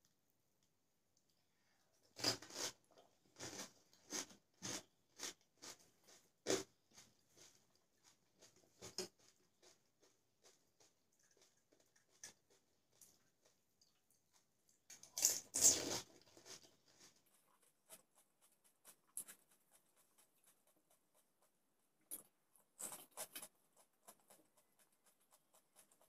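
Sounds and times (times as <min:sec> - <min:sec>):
crunchy shell being chewed: 0:08.4 - 0:14.0.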